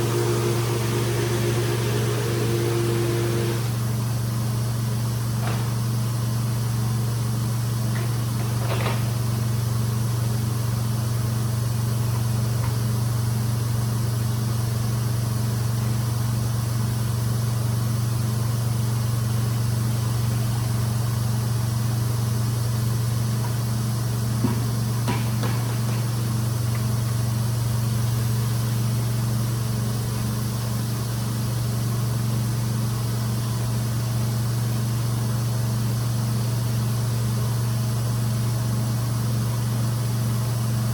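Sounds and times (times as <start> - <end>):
cleaning machine motor humming: 0.0 - 4.2.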